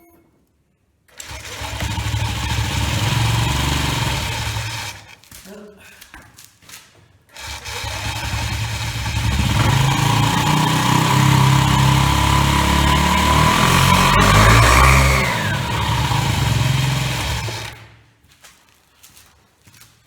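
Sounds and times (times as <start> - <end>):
scooter engine starting and revving: 1.1 - 5.2, 7.4 - 18.0.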